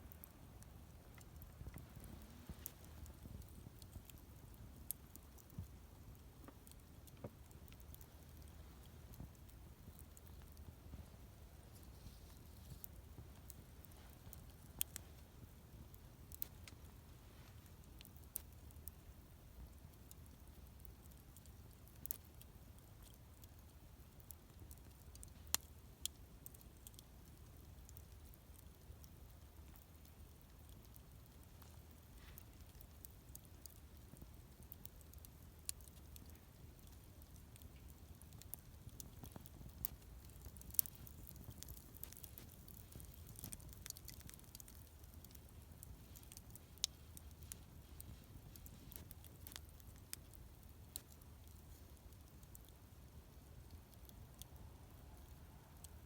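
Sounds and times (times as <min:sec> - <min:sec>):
low steady rumble: 0:00.0 - 0:21.7
campfire crackling: 0:00.1 - 0:56.0.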